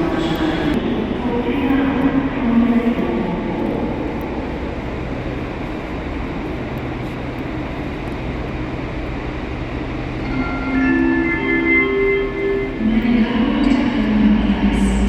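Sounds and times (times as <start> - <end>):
low hum: 0.0 - 15.0
train rumbling: 0.0 - 15.0
high-pitched tones: 10.2 - 15.0.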